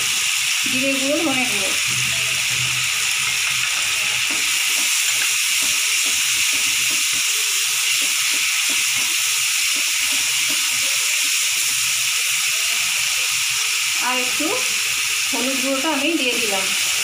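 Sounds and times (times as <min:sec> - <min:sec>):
food sizzling in oil: 0:00.0 - 0:17.0.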